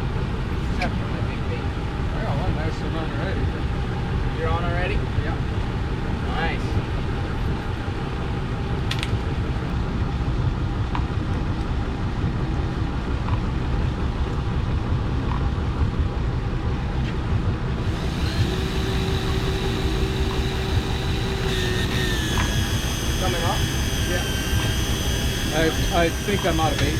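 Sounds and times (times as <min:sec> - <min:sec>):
steady whine: 0:00.0 - 0:26.9
boat engine idling: 0:17.6 - 0:26.9.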